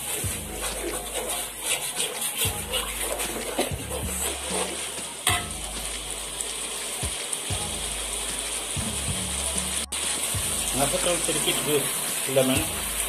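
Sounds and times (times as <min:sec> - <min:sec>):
metal spatula scraping pan: 0:00.0 - 0:05.6
sauce sizzling and bubbling: 0:00.0 - 0:13.0.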